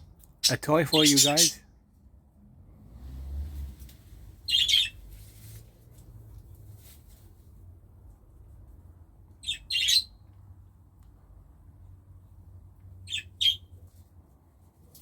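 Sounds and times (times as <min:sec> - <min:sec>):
budgerigars calling: 0:00.4 - 0:01.6, 0:04.5 - 0:05.0, 0:09.4 - 0:10.1.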